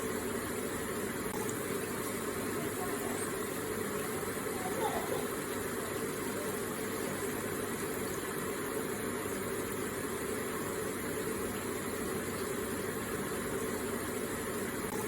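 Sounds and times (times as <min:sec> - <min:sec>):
water feature flowing: 0:00.0 - 0:15.0.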